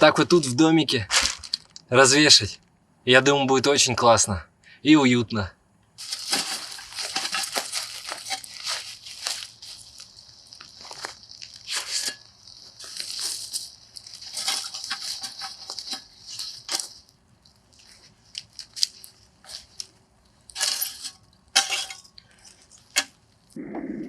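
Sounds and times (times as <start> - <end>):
steady high hiss: 1.8 - 24.0
rustles knocks and clinks: 6.0 - 23.5.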